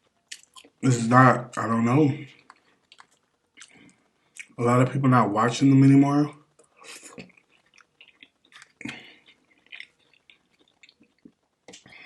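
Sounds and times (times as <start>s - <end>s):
person chewing with wet smacks: 0.0s - 0.8s, 2.3s - 4.6s, 6.5s - 12.0s.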